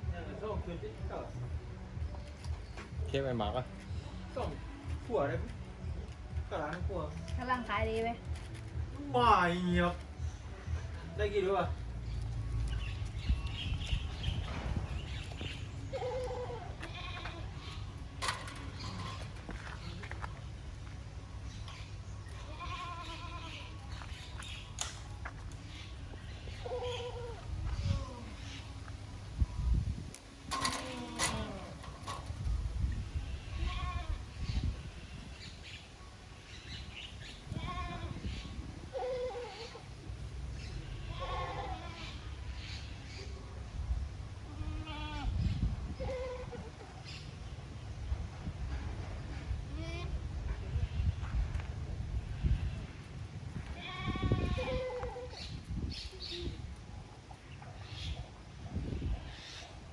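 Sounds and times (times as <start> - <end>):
animal bleat-like cry: 15.9 - 17.6, 22.4 - 23.7, 30.7 - 31.8, 41.0 - 42.2, 44.5 - 45.4, 53.8 - 55.4.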